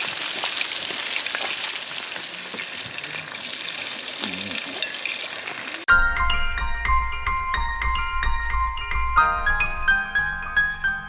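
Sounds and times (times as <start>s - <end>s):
meat sizzling in a pan: 0.0s - 5.9s.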